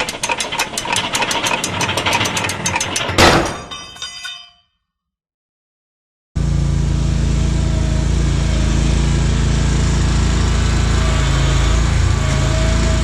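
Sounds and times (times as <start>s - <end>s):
riding mower engine running: 0.0s - 3.0s, 6.4s - 13.0s.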